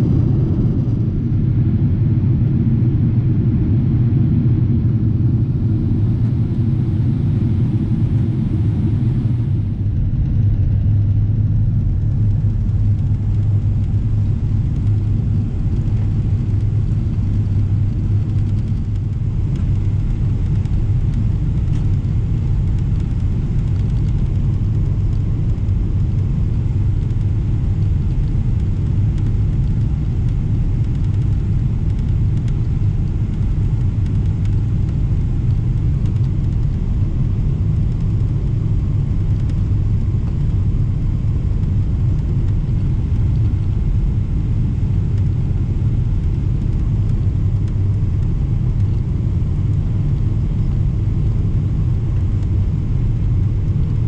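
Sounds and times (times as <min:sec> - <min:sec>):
airplane cabin engine rumble: 0:00.0 - 0:54.0.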